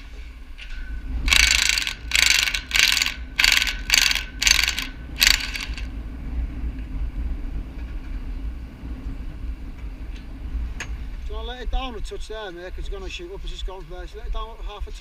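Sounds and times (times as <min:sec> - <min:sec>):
low steady rumble: 0:00.0 - 0:15.0
metal ratchet rasping: 0:01.3 - 0:05.9.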